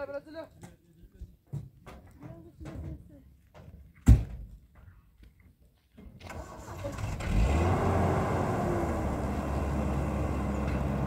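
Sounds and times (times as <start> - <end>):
vehicle engine starting and idling: 6.2 - 11.0.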